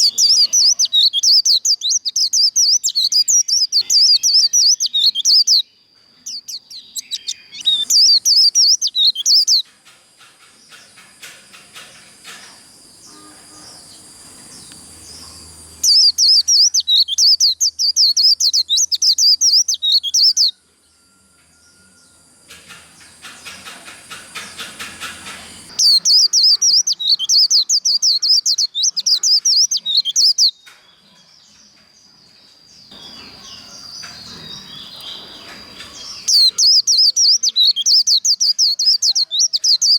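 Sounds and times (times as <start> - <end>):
bird warbling trills: 0.0 - 5.6, 6.2 - 9.7, 11.8 - 20.6, 21.6 - 30.5, 32.9 - 39.9
soft bird chirps: 0.0 - 39.9
faint steady high tone: 13.0 - 16.8, 20.5 - 22.5.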